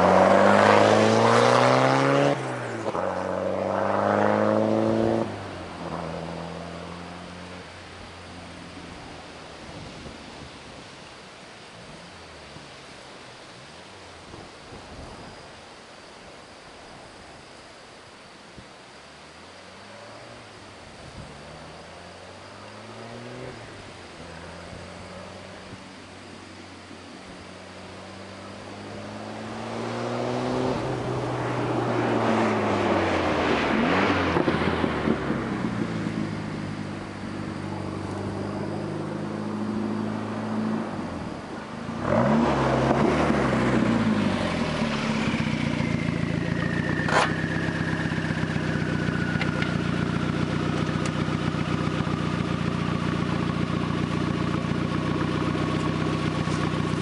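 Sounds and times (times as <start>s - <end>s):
car passing by: 0.0s - 10.8s, 19.6s - 26.6s, 27.8s - 57.0s
car engine idling: 43.3s - 57.0s.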